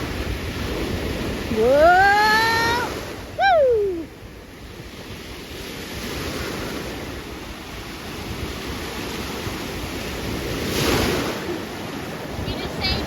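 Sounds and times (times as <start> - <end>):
wave breaking: 0.0 - 4.1, 8.3 - 13.0
ocean surf on a beach: 0.0 - 13.0
wind buffeting microphone: 0.0 - 13.0.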